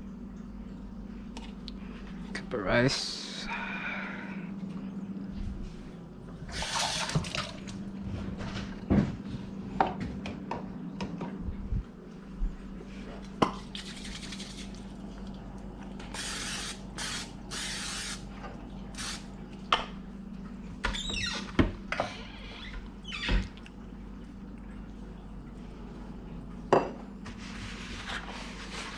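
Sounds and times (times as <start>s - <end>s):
steady low hum: 0.0s - 28.9s
kitchen tap water running: 6.5s - 7.8s, 16.1s - 18.2s, 18.9s - 19.3s.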